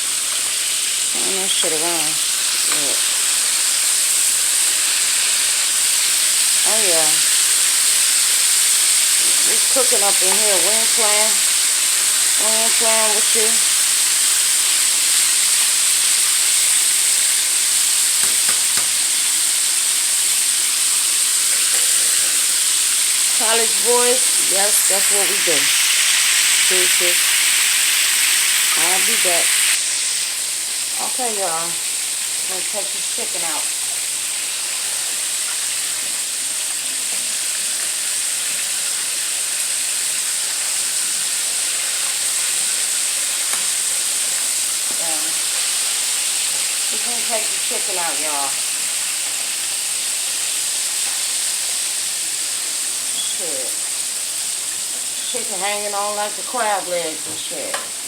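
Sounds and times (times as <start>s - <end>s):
chicken wings sizzling: 0.0s - 58.0s.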